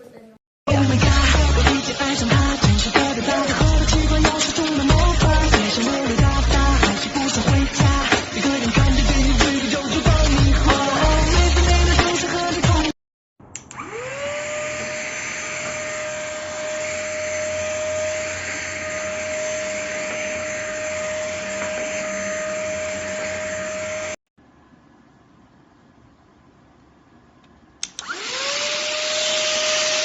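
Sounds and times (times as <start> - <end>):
vacuum suction hiss: 0.9 - 11.4
stick vacuum motor whine: 13.6 - 24.2, 27.8 - 30.0.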